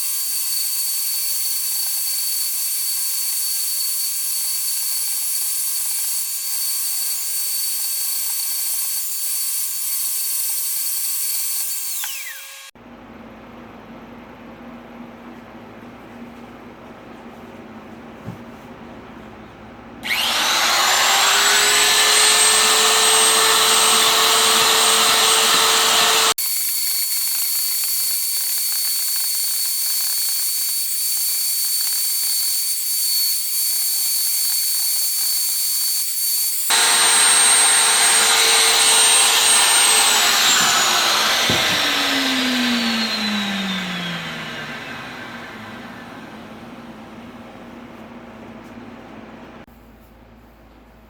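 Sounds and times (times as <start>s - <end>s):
power tool motor whining: 20.0s - 26.4s, 36.7s - 46.7s.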